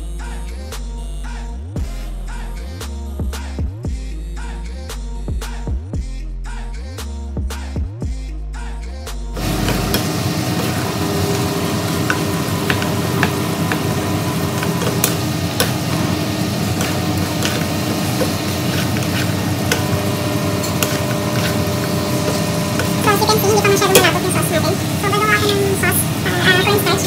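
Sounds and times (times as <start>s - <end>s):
meat sizzling in sauce: 9.4s - 24.0s
wooden spatula scraping pan: 9.5s - 24.2s.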